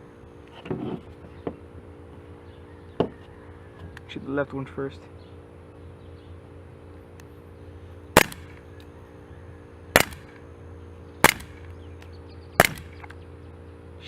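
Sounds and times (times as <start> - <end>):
pellet pistol shots: 8.1 - 8.7, 9.9 - 10.4, 11.2 - 11.8, 12.6 - 13.2.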